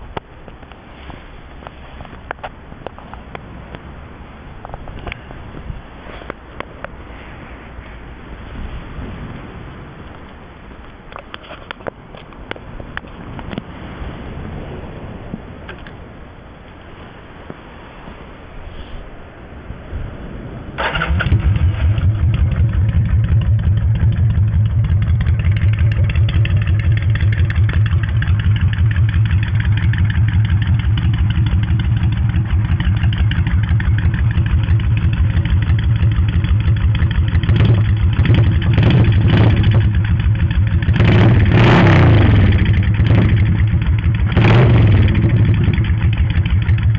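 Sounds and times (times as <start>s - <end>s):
motorcycle engine idling and revving: 20.8s - 46.9s.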